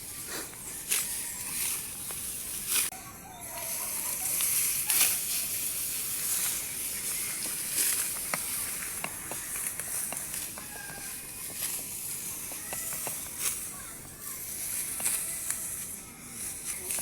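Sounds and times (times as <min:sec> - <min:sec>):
stalks swishing: 0:00.0 - 0:02.9, 0:03.7 - 0:17.0
steady high hiss: 0:00.0 - 0:02.9, 0:03.5 - 0:17.0
rice stalks rustling: 0:00.0 - 0:17.0.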